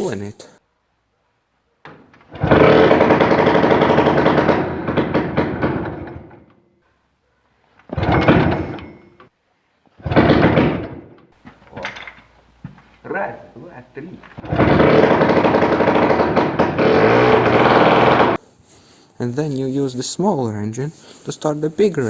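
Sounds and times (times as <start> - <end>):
small engine pull-starting: 2.2 - 6.5, 7.9 - 9.1, 10.0 - 10.9, 14.4 - 18.4.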